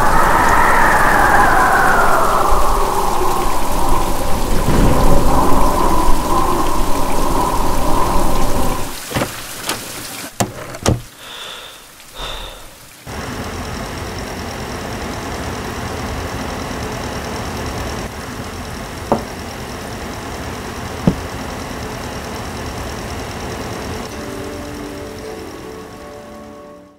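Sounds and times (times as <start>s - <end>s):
faint high whine: 0.0s - 9.0s, 23.8s - 26.9s
space heater fan noise: 0.0s - 10.9s, 12.2s - 26.9s.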